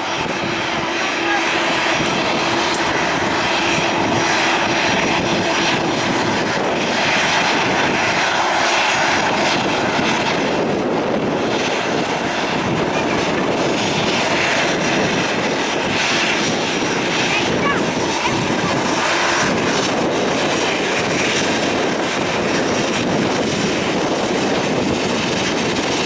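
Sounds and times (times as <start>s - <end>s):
aircraft engines running: 0.0s - 26.0s.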